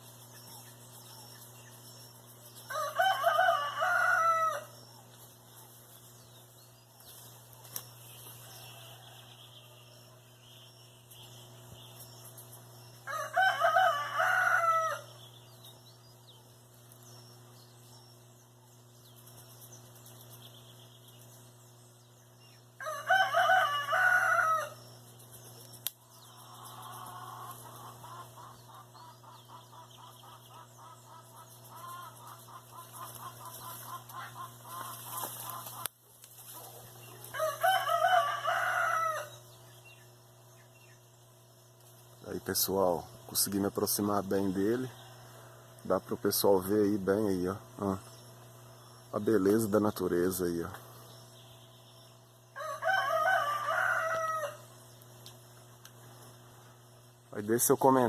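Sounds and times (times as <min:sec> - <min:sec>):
rooster crowing: 0:02.7 - 0:04.8, 0:08.4 - 0:10.1, 0:13.0 - 0:15.2, 0:22.8 - 0:24.8, 0:37.2 - 0:39.4, 0:52.5 - 0:54.7.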